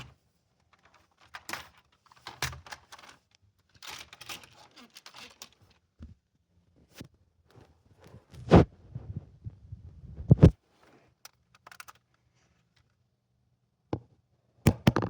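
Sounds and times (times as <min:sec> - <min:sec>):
hard objects clicking and clattering: 0:00.6 - 0:05.8, 0:11.3 - 0:12.2.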